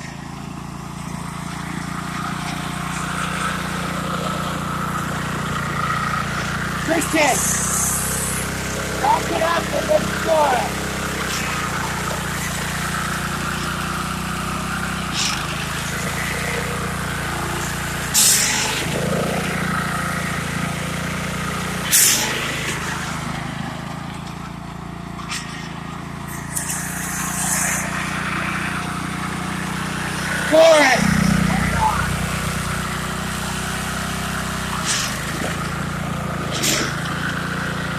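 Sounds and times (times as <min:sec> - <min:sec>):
lawn tractor engine running: 0:00.0 - 0:37.9
short noisy bursts: 0:01.1 - 0:23.9, 0:25.3 - 0:37.9.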